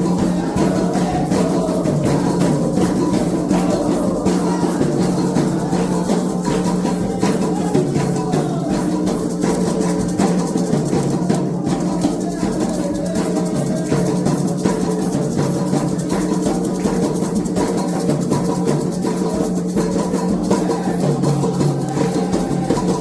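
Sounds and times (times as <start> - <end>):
hand drums playing rhythm: 0.0 - 23.0
shaken rattle: 0.0 - 23.0.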